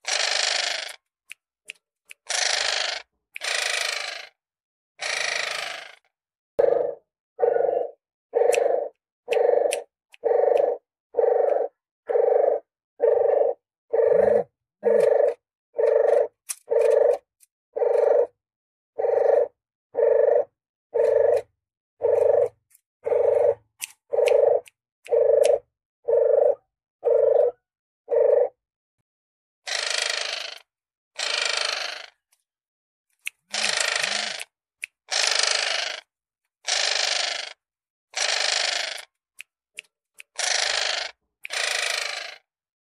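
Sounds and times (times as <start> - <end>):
dove cooing: 6.6 - 17.2, 17.8 - 18.3, 19.0 - 23.6, 24.2 - 28.6.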